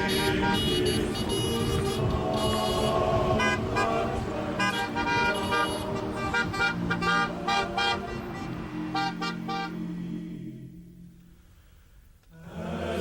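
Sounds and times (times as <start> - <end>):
car horns honking: 0.0 - 9.9
traffic rumble: 0.0 - 12.6.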